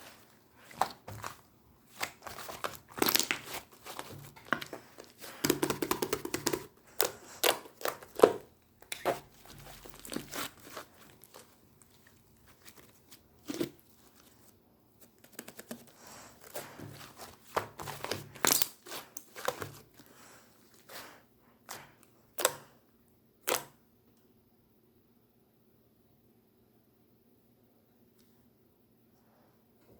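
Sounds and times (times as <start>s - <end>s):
slime squishing and popping: 0.6s - 13.8s, 16.4s - 19.9s.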